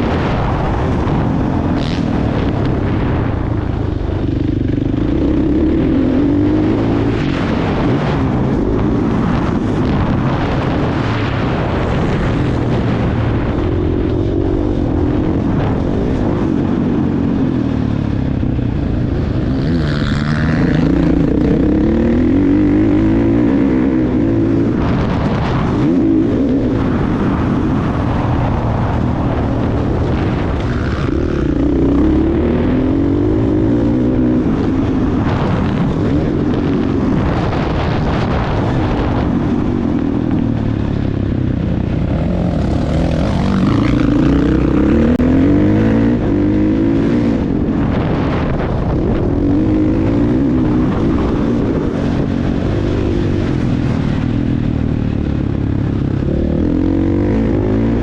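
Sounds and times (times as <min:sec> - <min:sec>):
dirt bike engine revving: 0:00.0 - 0:28.4, 0:41.8 - 0:54.1.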